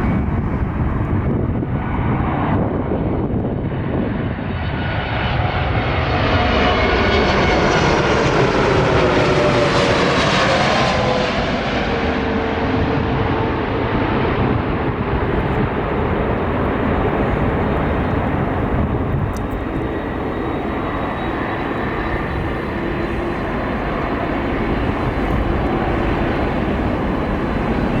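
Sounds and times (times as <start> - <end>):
airliner engines rumbling: 0.0 - 28.0
faint whining tones: 11.7 - 28.0.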